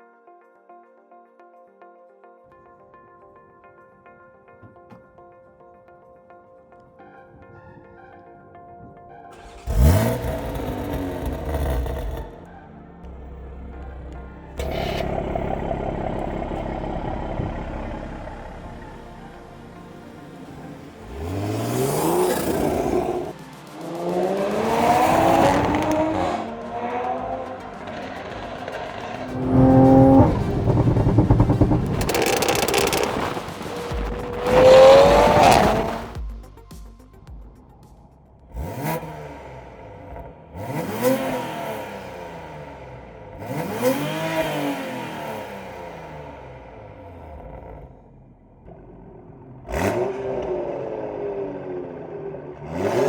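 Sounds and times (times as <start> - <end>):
car engine accelerating hard: 9.4 - 36.2, 38.5 - 53.0.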